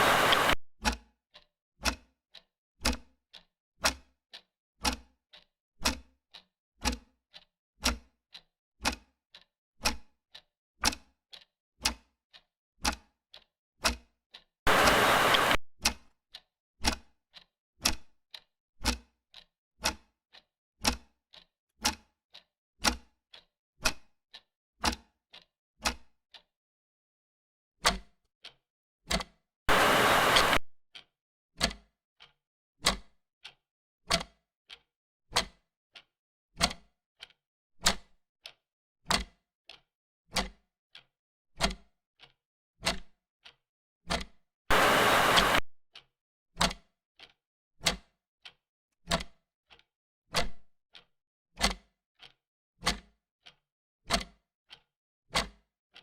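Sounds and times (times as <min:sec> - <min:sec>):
clock ticking: 0:00.0 - 0:04.0, 0:04.8 - 0:15.6, 0:17.8 - 0:19.0, 0:19.8 - 0:24.0.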